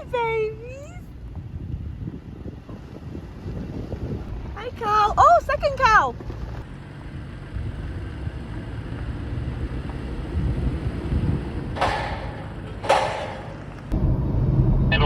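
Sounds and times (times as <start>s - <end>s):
truck engine and road rumble: 0.0s - 15.0s.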